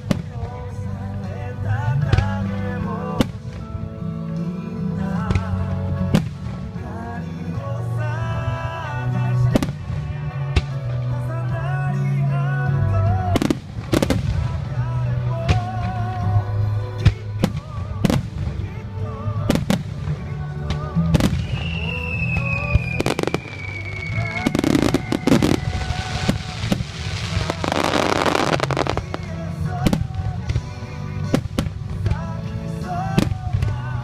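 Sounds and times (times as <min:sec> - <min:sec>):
fireworks crackling: 0:00.0 - 0:03.8, 0:08.4 - 0:11.4, 0:13.2 - 0:34.0
music with bass line: 0:00.0 - 0:34.0
fireworks bursting: 0:09.4 - 0:11.2, 0:13.2 - 0:16.2, 0:17.0 - 0:34.0
falling firework whistle: 0:21.2 - 0:29.4.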